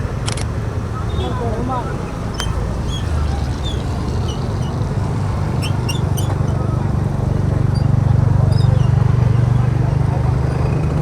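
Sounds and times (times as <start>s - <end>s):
road noise: 0.0s - 11.0s
scooter engine hum: 0.0s - 11.0s
quick run of clicks: 0.2s - 0.6s.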